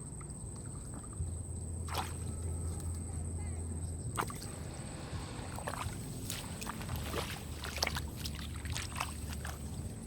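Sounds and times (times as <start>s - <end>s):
water splashing and sloshing: 0.0s - 3.0s, 4.1s - 10.0s
low steady rumble: 0.0s - 10.0s.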